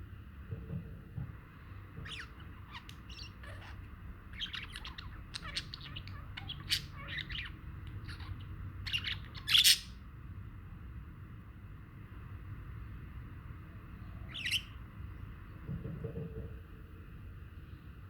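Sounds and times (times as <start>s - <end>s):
budgerigars chirping: 2.0s - 10.0s, 14.2s - 14.8s
harsh bird squawk: 2.0s - 10.0s, 14.2s - 14.8s.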